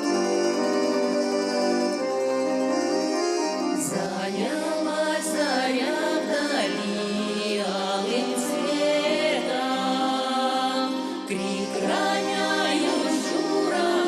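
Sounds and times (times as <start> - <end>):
orchestra playing: 0.0 - 5.2
group of voices singing: 3.8 - 14.0.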